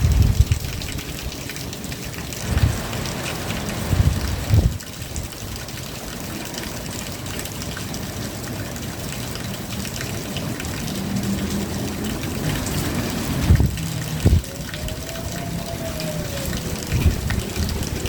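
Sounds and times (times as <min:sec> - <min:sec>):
steady rain: 0:00.0 - 0:18.0
trickling water: 0:00.0 - 0:18.0.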